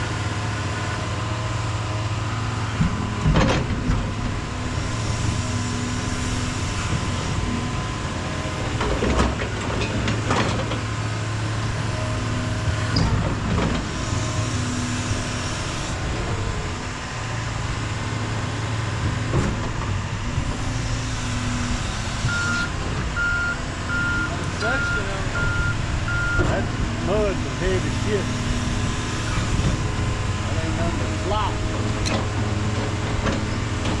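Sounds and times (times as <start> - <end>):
heavy diesel machinery running: 0.0 - 34.0
reversing alarm beeping: 22.2 - 26.6.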